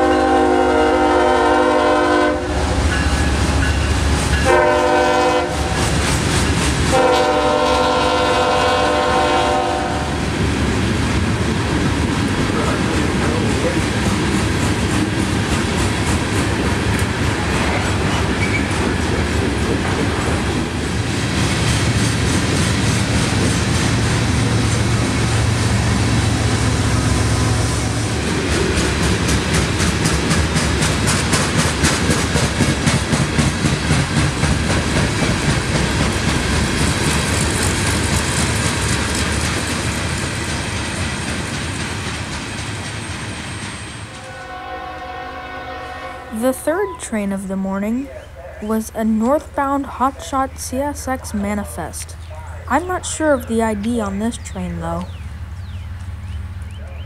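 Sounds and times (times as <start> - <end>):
train wheels rumbling on rail: 0.0 - 57.0
wheels clacking over rail joints: 28.2 - 44.2.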